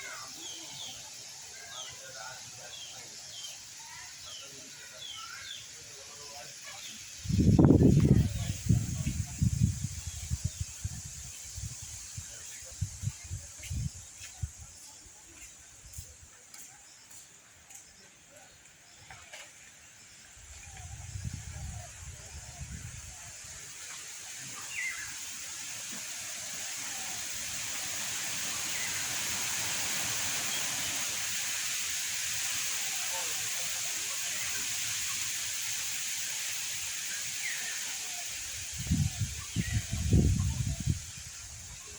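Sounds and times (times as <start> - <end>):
steady high-pitched hiss: 0.0 - 41.9
wind on microphone rumble: 7.2 - 14.7, 20.5 - 23.3, 38.7 - 41.9.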